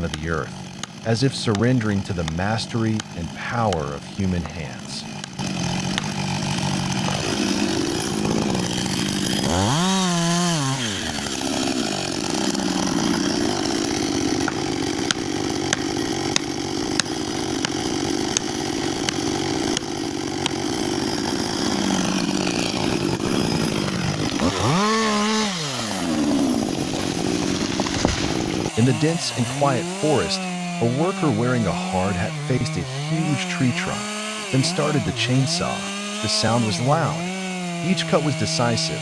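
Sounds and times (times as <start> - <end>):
sharp ticks: 0.0 - 3.9
chainsaw cutting wood: 0.0 - 39.0.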